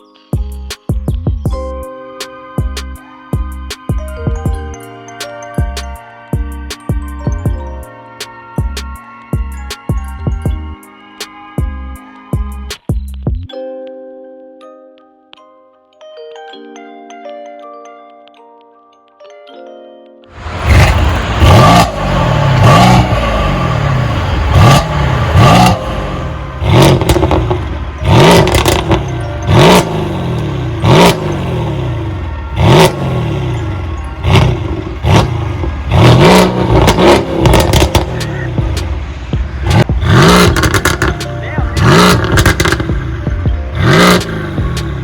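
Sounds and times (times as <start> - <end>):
car engine revving: 20.4 - 45.0
exhaust pops and crackles: 26.8 - 29.0, 34.3 - 45.0.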